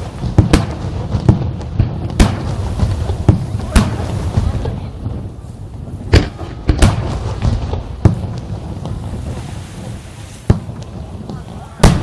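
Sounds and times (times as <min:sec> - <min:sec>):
fireworks bangs: 0:00.0 - 0:12.0
low rumble of explosions: 0:00.0 - 0:12.0.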